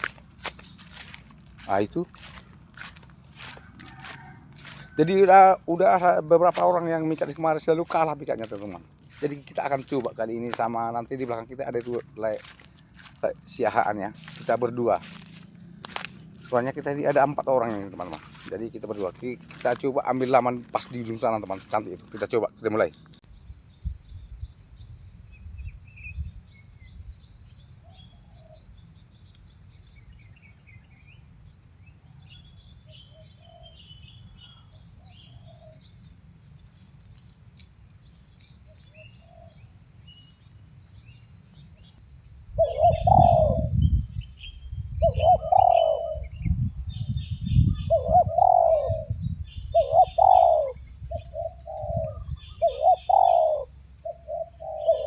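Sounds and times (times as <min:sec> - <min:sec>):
doves cooing: 0:00.0 - 0:22.4, 0:42.6 - 0:43.8, 0:45.0 - 0:46.4, 0:47.8 - 0:55.0
high insect drone: 0:00.0 - 0:55.0.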